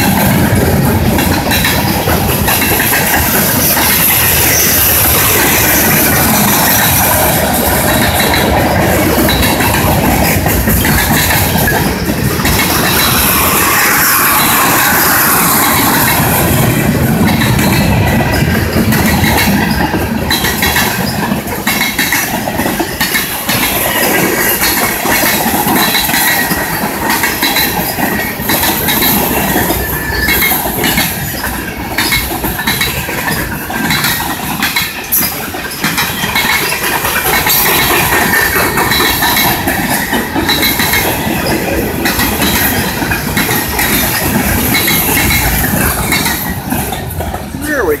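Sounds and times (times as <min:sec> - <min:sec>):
train wheels rumbling on rail: 0:00.0 - 0:48.0
wheels clacking over rail joints: 0:00.0 - 0:48.0
high wheel squeal: 0:03.3 - 0:07.0, 0:11.5 - 0:16.7.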